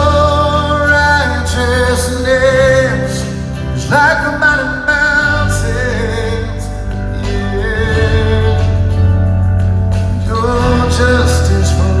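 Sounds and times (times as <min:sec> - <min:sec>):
person singing lead vocal: 0:00.0 - 0:09.4, 0:10.0 - 0:12.0
live rock band playing: 0:00.0 - 0:12.0.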